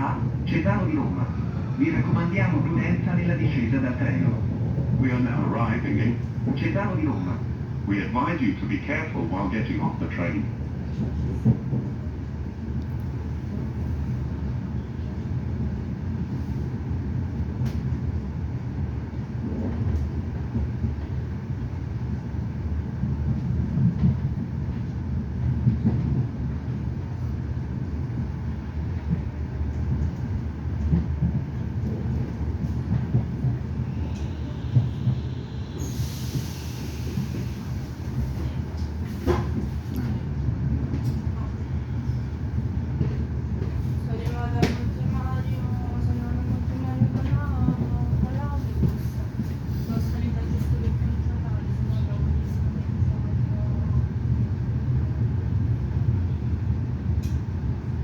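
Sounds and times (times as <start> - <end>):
train running rumble: 0.0 - 58.0
loud air hiss: 35.8 - 38.0.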